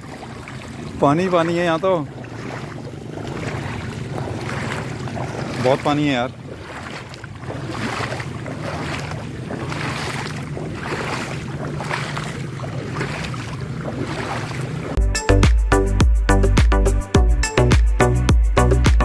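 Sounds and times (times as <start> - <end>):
low engine hum: 0.0 - 15.0
water rushing on street: 0.0 - 15.0
music with strong beat: 15.0 - 19.0.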